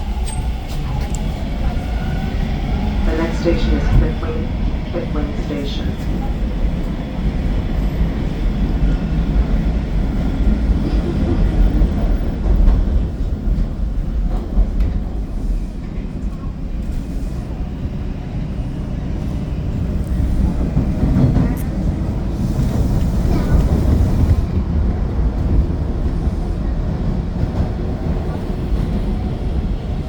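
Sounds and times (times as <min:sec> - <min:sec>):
subway train wheels rumbling: 0:00.0 - 0:30.0.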